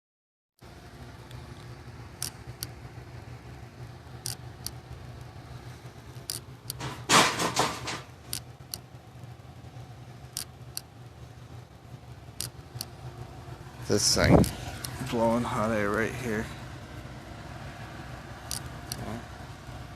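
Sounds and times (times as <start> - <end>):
heat pump humming: 0.6 - 19.9
sharp clicks: 1.2 - 2.8, 4.2 - 5.3, 10.3 - 10.9, 12.4 - 13.0, 18.4 - 19.1.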